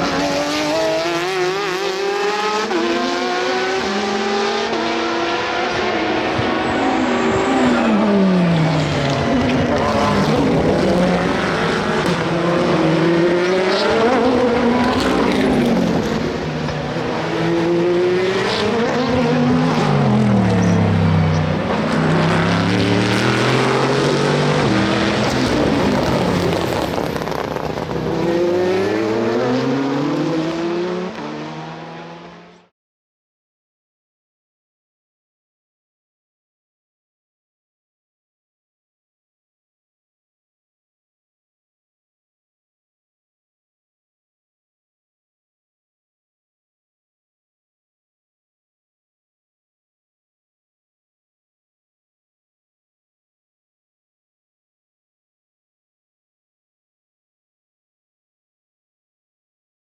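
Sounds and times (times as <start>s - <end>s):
engines downshifting and accelerating: 0.0s - 32.7s
race cars passing: 0.0s - 32.7s.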